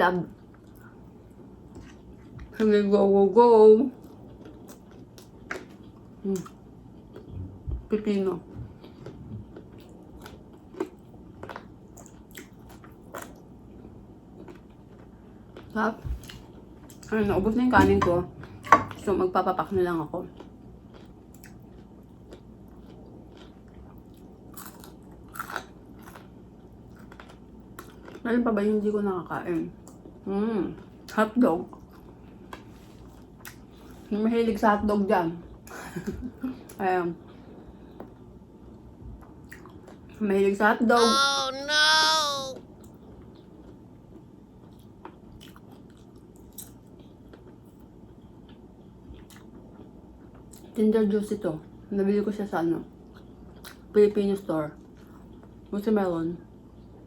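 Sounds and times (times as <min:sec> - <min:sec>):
steady low hum: 0:04.0 - 0:11.2, 0:15.1 - 0:20.9
person chewing food: 0:44.6 - 0:47.6.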